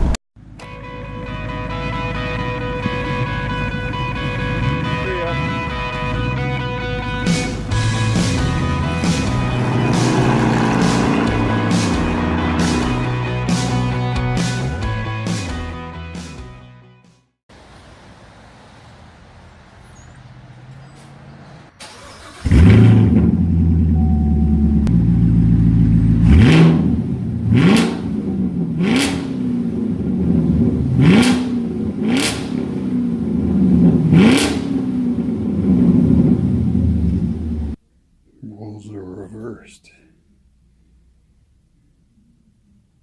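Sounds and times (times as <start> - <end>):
engine throttle blips: 0.0 - 14.0, 21.7 - 37.8
car engine starting: 0.0 - 15.4, 19.0 - 37.8.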